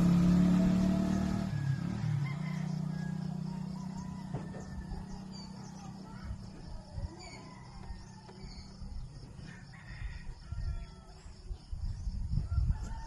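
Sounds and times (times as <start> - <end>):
rooster crowing: 1.5 - 5.5, 7.1 - 8.8, 9.4 - 11.4, 12.4 - 13.0.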